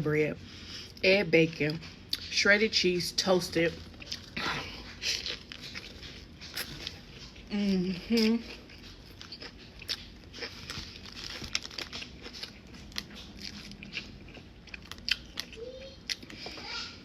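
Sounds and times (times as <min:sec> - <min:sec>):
chewing and crunching sandwich: 0:03.4 - 0:17.0.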